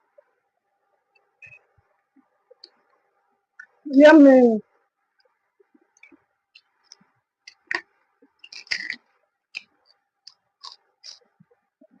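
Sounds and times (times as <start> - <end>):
person chewing food: 6.0 - 11.4
wet mouth smacks and clicks: 10.3 - 11.2.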